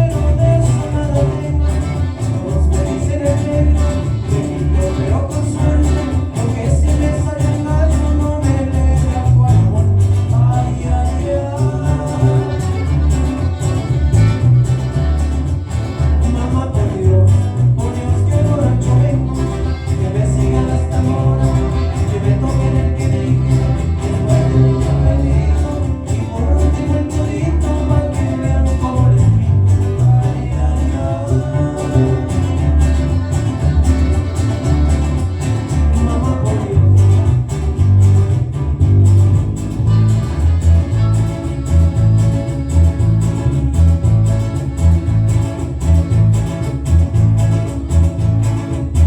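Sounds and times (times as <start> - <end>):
person singing: 0.0 - 14.9, 16.0 - 37.4
band playing cumbia: 0.0 - 49.0.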